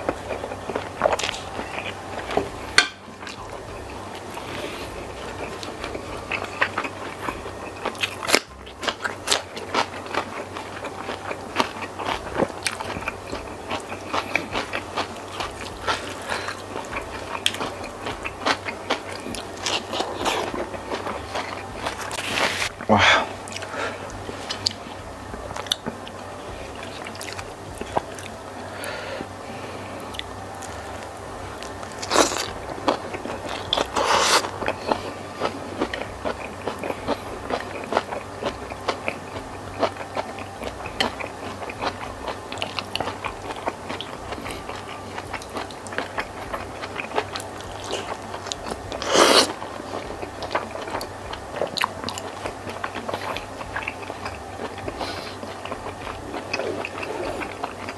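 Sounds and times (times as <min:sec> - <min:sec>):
chewing with wet clicks: 0:05.4 - 0:22.1, 0:25.5 - 0:26.1, 0:31.6 - 0:57.9.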